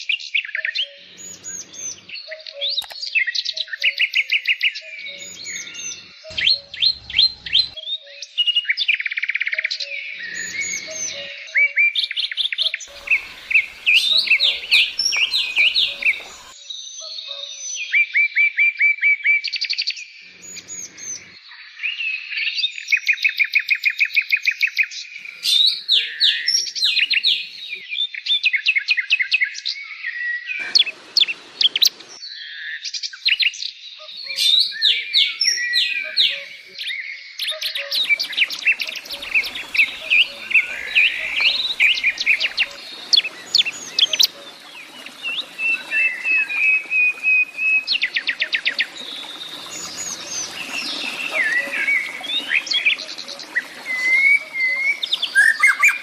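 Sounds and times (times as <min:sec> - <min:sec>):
songbirds singing: 0:00.0 - 0:17.9, 0:19.1 - 0:56.0.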